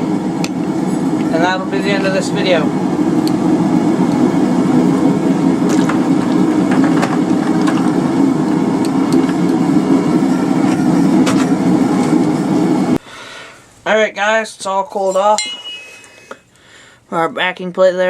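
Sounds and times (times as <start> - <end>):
forge roaring: 0.0 - 13.0.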